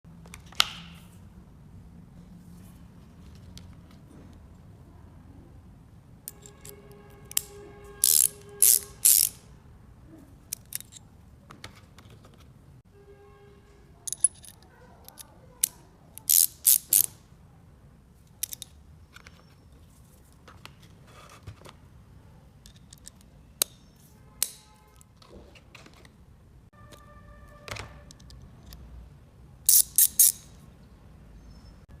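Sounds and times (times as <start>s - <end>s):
metal hand tool clicks and snaps: 6.3s - 9.4s, 10.5s - 11.0s, 14.1s - 17.1s, 18.4s - 18.8s, 24.4s - 24.7s, 29.7s - 30.6s.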